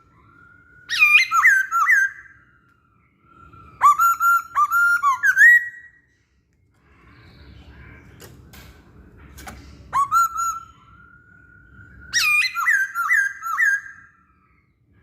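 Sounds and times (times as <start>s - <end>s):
bird whistling song: 0.0s - 6.1s, 9.7s - 15.0s.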